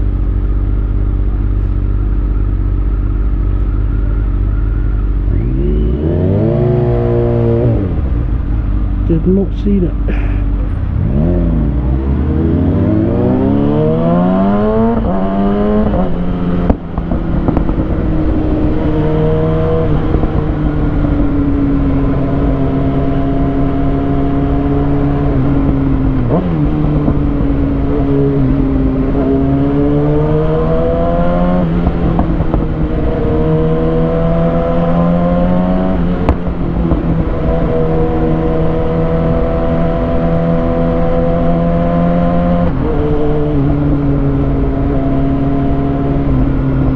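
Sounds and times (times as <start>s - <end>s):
motorcycle engine revving: 0.8s - 9.4s, 10.0s - 46.9s.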